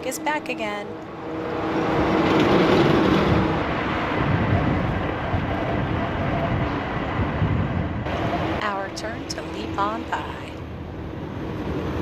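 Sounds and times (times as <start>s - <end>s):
truck passing close by: 0.2s - 8.6s.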